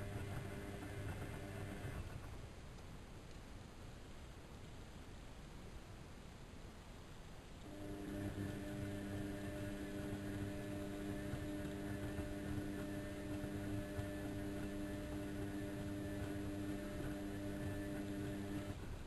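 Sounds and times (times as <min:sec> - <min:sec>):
washing machine humming: 0:00.0 - 0:02.8, 0:07.6 - 0:19.0.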